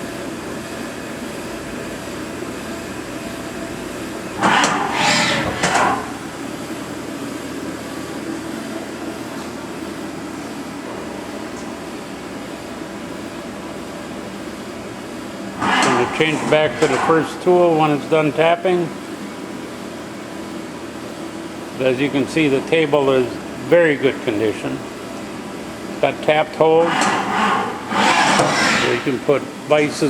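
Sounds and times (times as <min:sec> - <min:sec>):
machine hum: 0:02.7 - 0:09.3, 0:10.0 - 0:18.2, 0:24.2 - 0:29.4
loud two-part machine sound: 0:04.4 - 0:06.2, 0:26.8 - 0:29.1.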